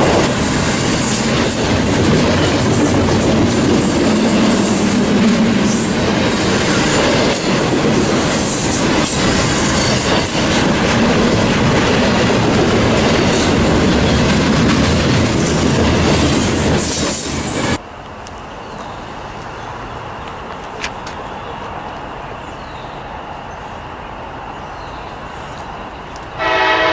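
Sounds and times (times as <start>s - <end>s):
freight train wheels on rails: 0.0s - 26.9s
quiet outdoor background: 17.1s - 26.6s.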